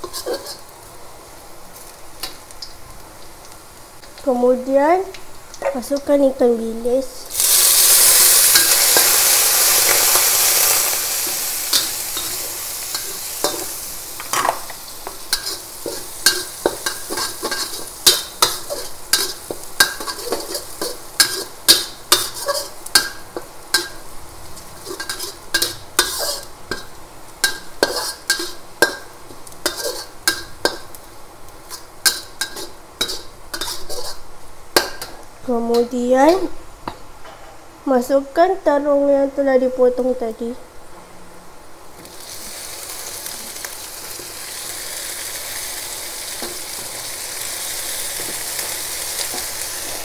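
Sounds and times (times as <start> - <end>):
metal spatula scraping wok: 0.0 - 0.7, 7.4 - 24.0, 24.7 - 30.9, 31.7 - 34.2
food sizzling in hot oil: 0.0 - 37.0, 41.9 - 50.0.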